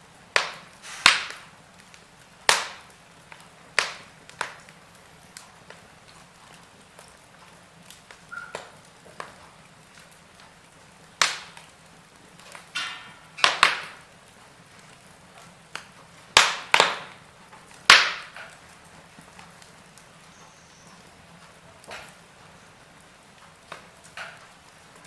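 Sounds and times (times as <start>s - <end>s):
burning logs popping: 0.0s - 25.0s
wood fire crackling: 0.0s - 25.0s.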